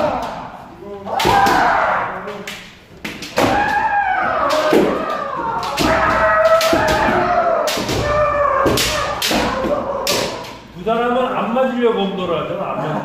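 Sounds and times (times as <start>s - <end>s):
fencers shouting: 0.0s - 10.8s
bamboo sword strikes cracking: 1.2s - 10.6s.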